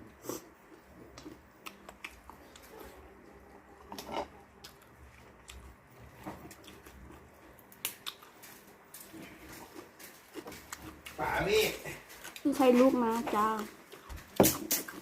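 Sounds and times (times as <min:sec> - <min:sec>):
chewing and eating: 0:00.0 - 0:15.0
mouth clicks and smacks: 0:01.1 - 0:02.7.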